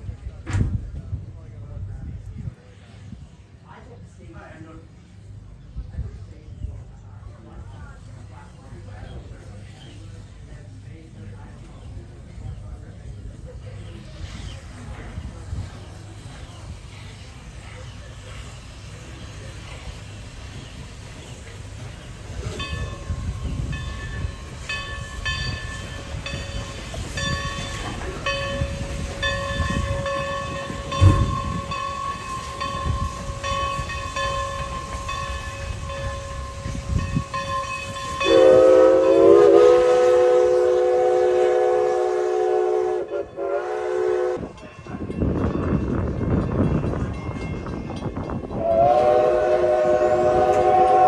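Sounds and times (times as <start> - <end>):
steam locomotive rumble: 0.0 - 51.0
chime steam whistle: 22.5 - 44.6, 48.4 - 51.0.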